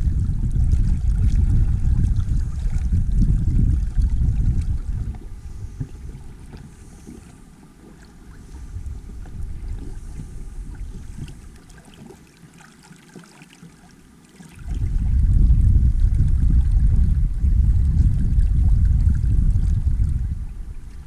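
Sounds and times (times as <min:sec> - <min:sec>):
wind buffeting microphone: 0:00.0 - 0:07.5, 0:08.2 - 0:11.7, 0:14.6 - 0:21.0
water lapping along hull: 0:00.0 - 0:21.0.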